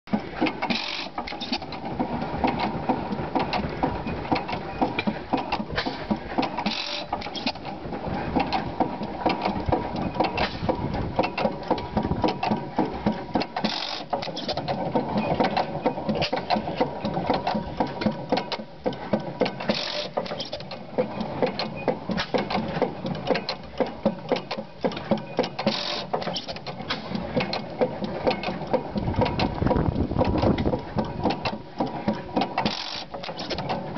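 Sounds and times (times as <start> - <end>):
stationary engine clattering: 0.1 - 33.9.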